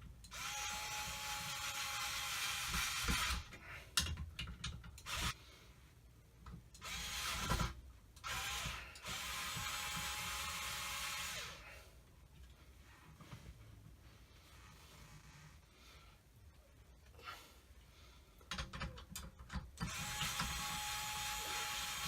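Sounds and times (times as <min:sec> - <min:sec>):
cordless drill driving screws: 0:00.3 - 0:03.5, 0:05.0 - 0:05.4, 0:06.8 - 0:11.6, 0:19.8 - 0:22.0.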